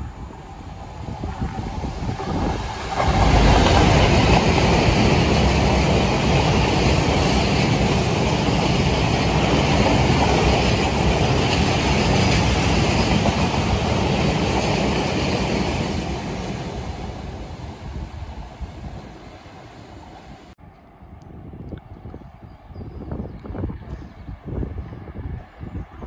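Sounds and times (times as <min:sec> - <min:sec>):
diesel locomotive passing: 0:00.0 - 0:20.6
freight wagons rumbling past: 0:01.2 - 0:19.2.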